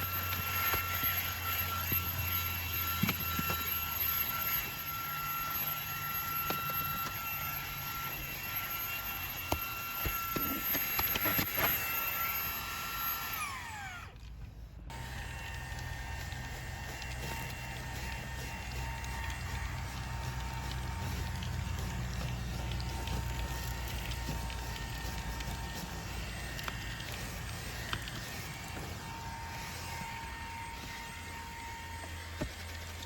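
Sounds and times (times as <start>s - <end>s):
handheld vacuum whining: 0.0s - 33.0s
debris ticking through nozzle: 14.9s - 29.5s.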